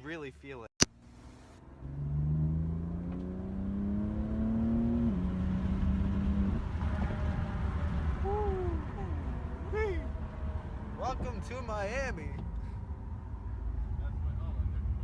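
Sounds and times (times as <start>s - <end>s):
low road rumble: 0.0s - 15.0s
car engine accelerating hard: 1.0s - 11.4s.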